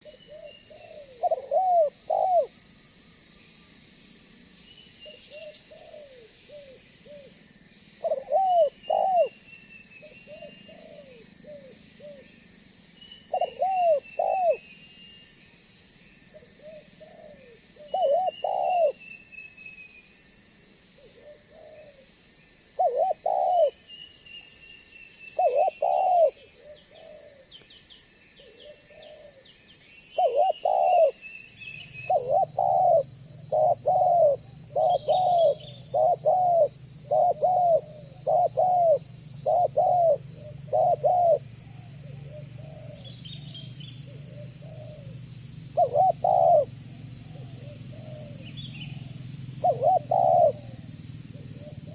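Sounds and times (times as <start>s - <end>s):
dove cooing: 0.0s - 2.6s, 5.0s - 7.4s, 8.0s - 9.4s, 10.0s - 12.3s, 13.3s - 14.6s, 16.3s - 19.0s, 21.0s - 22.1s, 22.8s - 23.8s, 25.4s - 27.6s, 28.4s - 29.6s, 30.2s - 51.9s.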